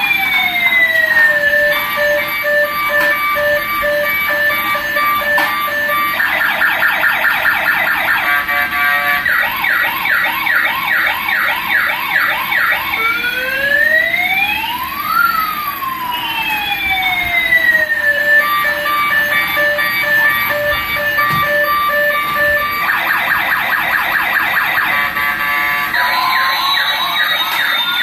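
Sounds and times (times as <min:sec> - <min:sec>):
toy siren patterns: 0:00.0 - 0:28.0
beeping electronic jingle: 0:01.5 - 0:06.2, 0:18.2 - 0:23.3, 0:26.0 - 0:28.0.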